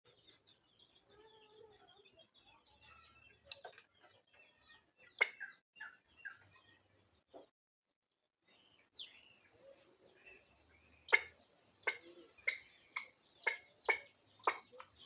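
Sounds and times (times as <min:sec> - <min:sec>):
sharp bird calls: 0:00.1 - 0:06.8, 0:08.5 - 0:15.0
small high bird chirps: 0:00.1 - 0:07.4.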